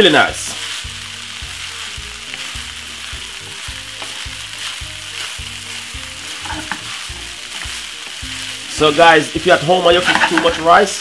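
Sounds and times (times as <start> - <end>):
background music with low beat: 0.0 - 10.8
rice sizzling in a frying pan: 0.0 - 11.0
wooden spoon stirring: 0.2 - 10.9.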